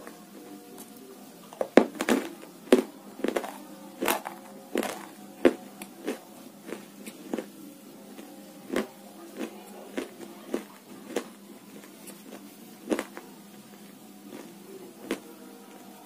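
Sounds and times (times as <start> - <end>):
faint steady hum: 0.0 - 16.0
chewing crunches: 2.0 - 7.5, 8.2 - 13.2, 14.3 - 15.2.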